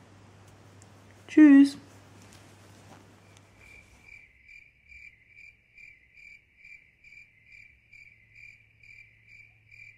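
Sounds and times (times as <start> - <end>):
cricket chirping: 3.2 - 9.9.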